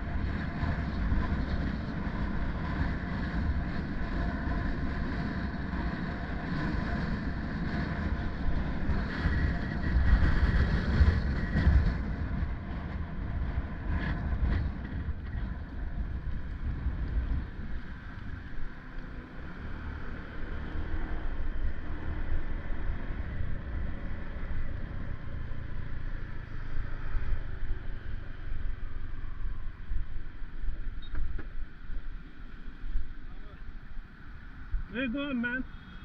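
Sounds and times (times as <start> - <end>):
wind buffeting microphone: 0.0 - 18.8
road and vehicle noise: 0.0 - 36.0.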